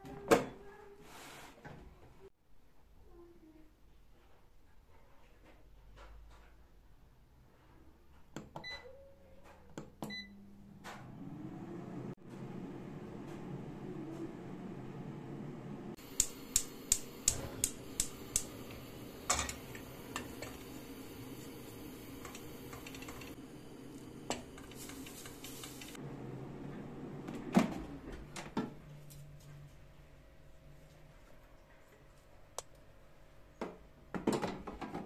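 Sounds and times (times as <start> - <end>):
sharp clicks: 16.2 - 18.6.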